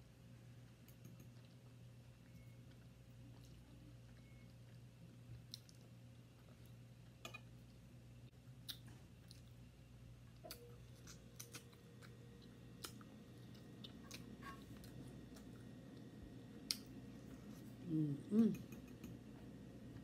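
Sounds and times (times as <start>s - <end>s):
low steady hum: 0.0s - 20.0s
person chewing: 0.8s - 6.8s, 8.6s - 9.6s, 10.3s - 19.2s.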